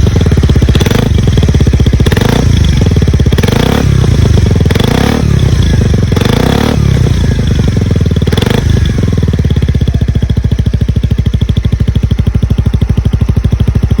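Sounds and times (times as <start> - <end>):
scooter engine revving and idling: 0.0 - 14.0.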